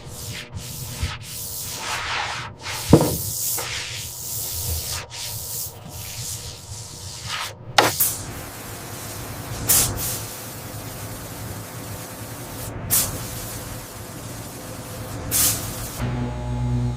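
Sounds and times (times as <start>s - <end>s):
rubbing strokes on metal: 0.0s - 7.5s
sharp knock: 2.9s - 3.3s.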